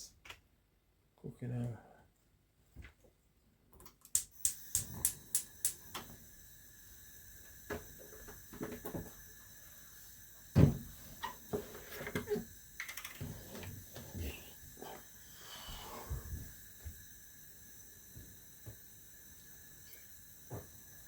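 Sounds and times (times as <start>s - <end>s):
loud thump: 10.6s - 10.9s.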